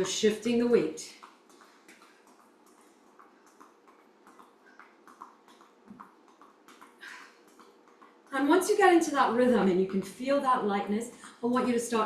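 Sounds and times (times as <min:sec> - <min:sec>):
running shoes tapping on floor: 0:00.0 - 0:09.0.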